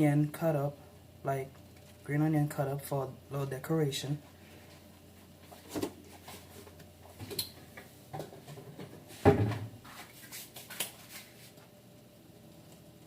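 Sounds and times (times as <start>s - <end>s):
kitchen knocks and clunks: 8.1s - 9.8s.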